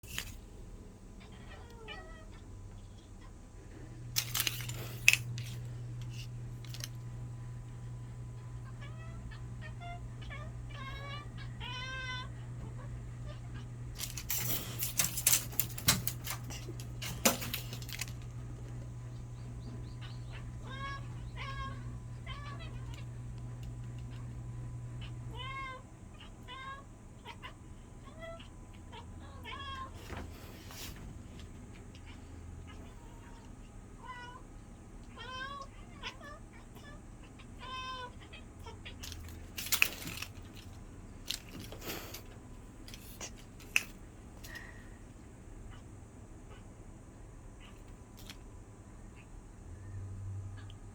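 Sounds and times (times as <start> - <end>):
steady low hum: 0.0 - 50.9
cat meowing: 1.2 - 2.5, 8.6 - 14.2, 19.9 - 23.1, 35.1 - 39.1.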